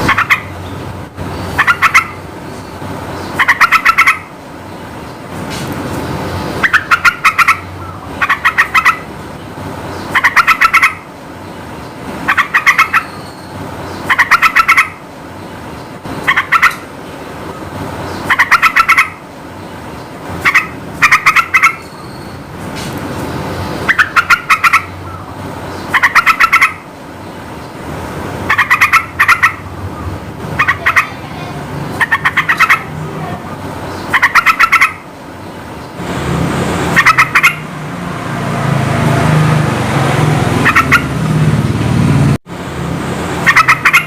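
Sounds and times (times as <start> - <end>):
bird calling in bubbly phrases: 0.0 - 0.6, 1.5 - 2.2, 3.4 - 4.3, 6.6 - 9.1, 10.1 - 11.0, 12.3 - 13.2, 14.0 - 15.0, 16.2 - 16.8, 17.5 - 19.2, 20.4 - 22.0, 23.9 - 26.8, 28.5 - 35.0, 36.9 - 37.6, 40.6 - 41.1, 43.4 - 44.0.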